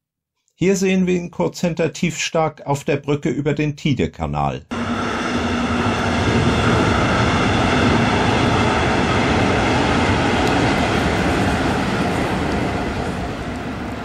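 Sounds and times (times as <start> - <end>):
steady hum: 4.7 - 14.0
train wheels rumbling on bridge: 4.7 - 14.0.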